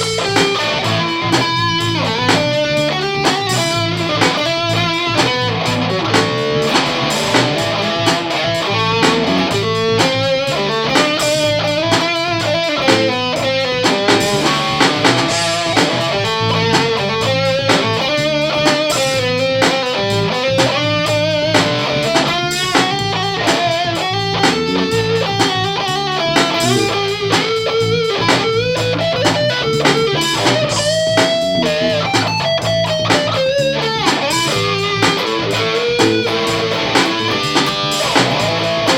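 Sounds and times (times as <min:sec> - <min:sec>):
distorted electric guitar melody: 0:00.0 - 0:38.9.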